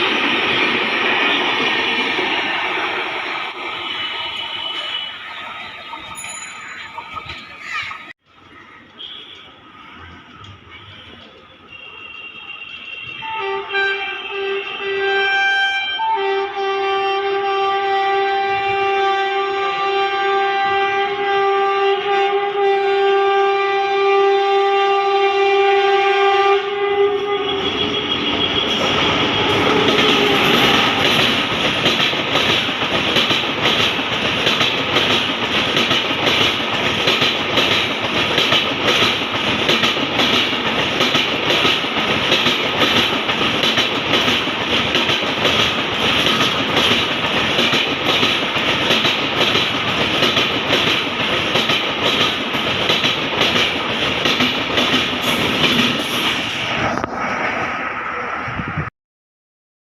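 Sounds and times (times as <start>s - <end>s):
train rushing past: 0.0s - 8.1s, 13.0s - 58.9s
locomotive horn: 3.7s - 5.4s, 11.5s - 31.4s
wheels clacking over rail joints: 28.2s - 57.2s.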